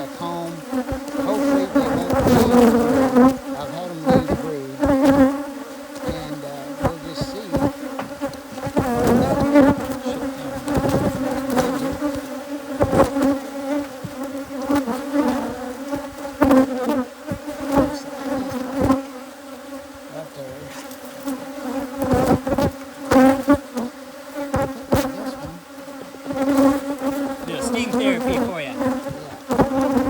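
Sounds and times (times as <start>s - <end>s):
bees buzzing: 0.0s - 30.0s
short knocks: 6.0s - 10.0s.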